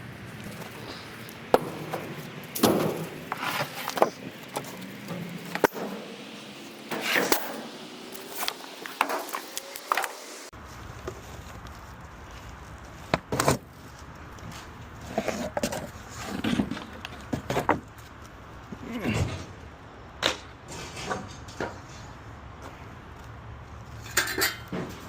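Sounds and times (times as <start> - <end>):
steady low hum: 0.0 - 10.5
debris knocking and clattering: 0.6 - 10.1.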